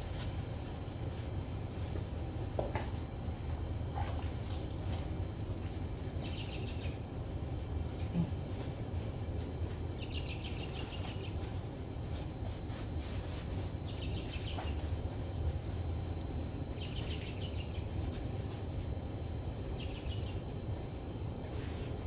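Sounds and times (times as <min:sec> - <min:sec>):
low outdoor rumble: 0:00.0 - 0:22.0
bird singing fast trill: 0:06.2 - 0:06.9.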